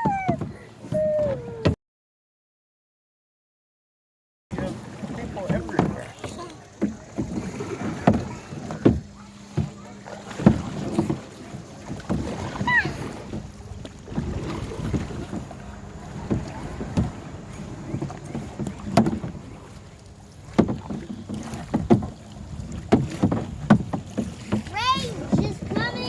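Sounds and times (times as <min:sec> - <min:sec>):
paddles splashing in water: 0:00.0 - 0:01.8, 0:04.5 - 0:26.0
wind on microphone: 0:00.0 - 0:01.8, 0:10.5 - 0:26.0
knocks and thuds: 0:20.5 - 0:24.7.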